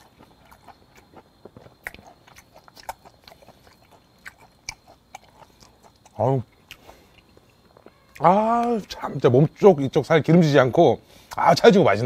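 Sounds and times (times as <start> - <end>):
person chewing wet food: 0.0 - 9.0.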